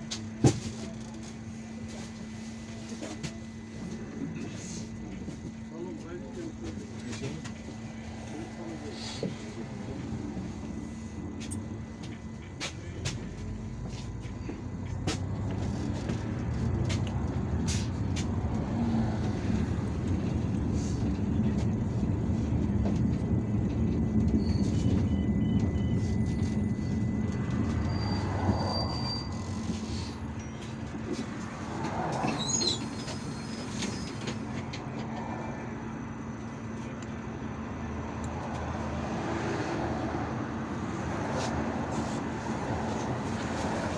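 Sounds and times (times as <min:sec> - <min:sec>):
bus engine hum: 0:00.0 - 0:43.9
road rumble: 0:00.0 - 0:43.9
high squeal: 0:24.3 - 0:30.6, 0:32.2 - 0:34.4.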